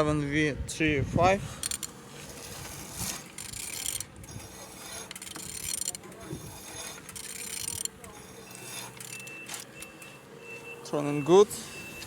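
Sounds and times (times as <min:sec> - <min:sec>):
engine internals clicking: 0:01.6 - 0:10.4.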